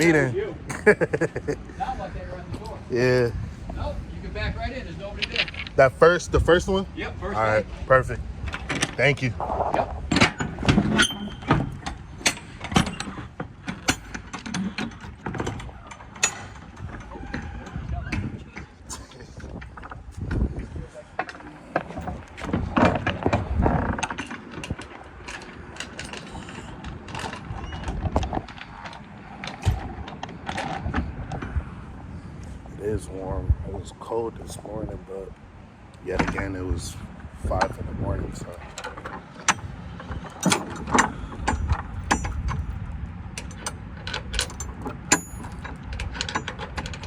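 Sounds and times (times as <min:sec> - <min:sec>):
steady low engine rumble: 0:00.0 - 0:47.0
metal mechanism clicking and clanking: 0:05.1 - 0:06.2, 0:10.1 - 0:17.8, 0:21.2 - 0:31.0, 0:38.4 - 0:47.0.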